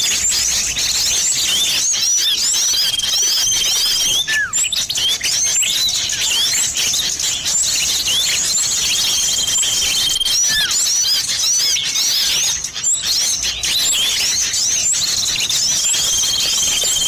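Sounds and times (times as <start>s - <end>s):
bird trill: 0.0s - 17.0s
rapid high bird chirps: 0.0s - 17.0s
falling bird whistle: 1.4s - 5.4s, 7.9s - 12.4s, 15.2s - 17.0s.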